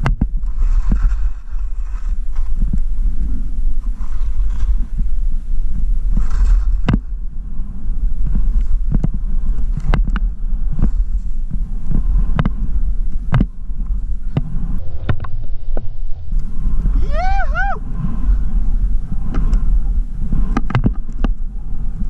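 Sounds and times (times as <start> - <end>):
wind buffeting microphone: 0.0 - 22.0
sharp clicks and knocks: 13.3 - 13.5, 20.5 - 21.4.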